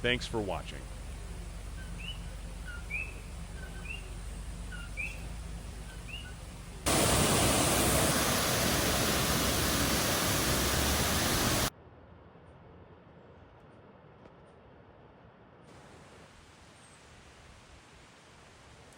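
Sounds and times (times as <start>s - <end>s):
frogs calling: 0.0s - 11.7s
loud steady rushing noise: 0.0s - 11.7s.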